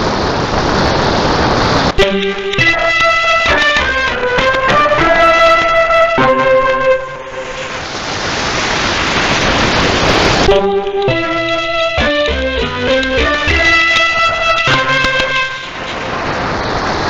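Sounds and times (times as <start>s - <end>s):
instrumental music on radio: 2.0s - 7.8s, 10.5s - 16.1s
radio static hiss: 7.3s - 12.0s.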